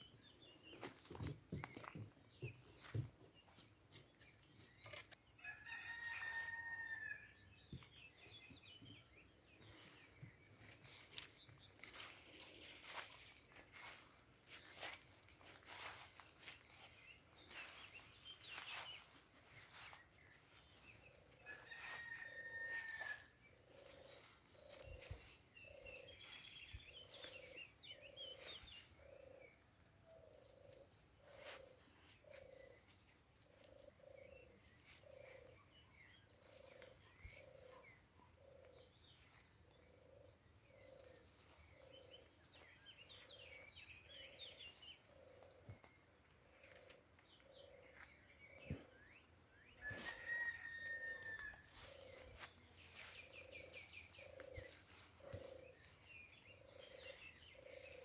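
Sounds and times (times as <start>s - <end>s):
bird chirps: 46.6s - 58.0s.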